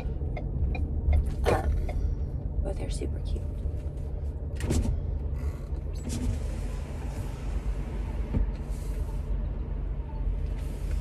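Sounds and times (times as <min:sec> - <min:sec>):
car engine rumbling inside cabin: 0:00.0 - 0:11.0.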